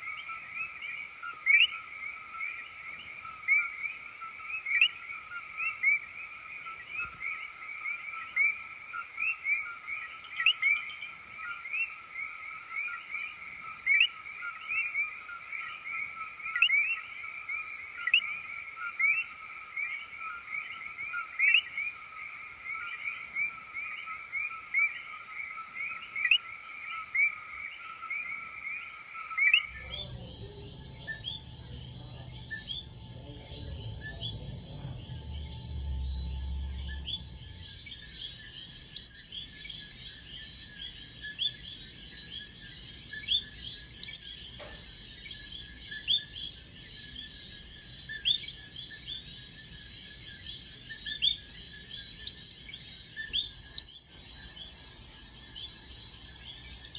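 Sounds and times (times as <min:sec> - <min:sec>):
frogs chirping: 0:00.0 - 0:56.9
quick rising frog chirps: 0:29.5 - 0:41.5
low rumble: 0:29.7 - 0:40.3.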